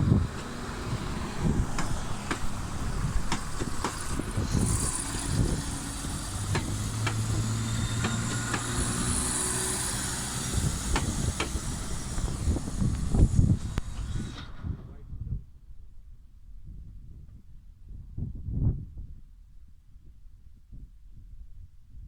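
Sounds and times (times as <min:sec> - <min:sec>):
train low steady hum: 0:00.0 - 0:15.2.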